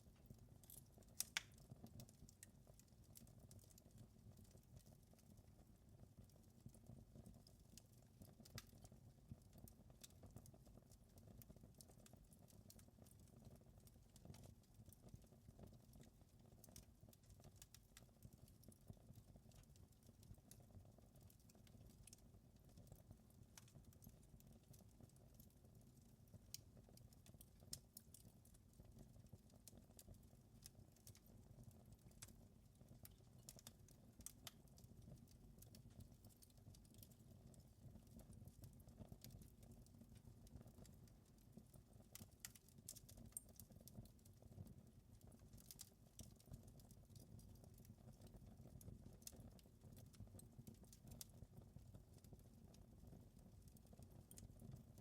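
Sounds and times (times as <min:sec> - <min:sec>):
wood fire crackling: 0:00.1 - 0:55.0.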